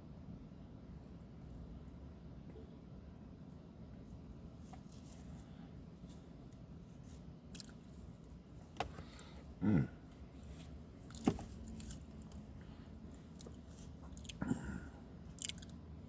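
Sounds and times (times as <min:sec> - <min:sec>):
faint chewing: 0:07.5 - 0:08.4, 0:13.2 - 0:15.8
short pitched vocal sound: 0:09.6 - 0:10.0.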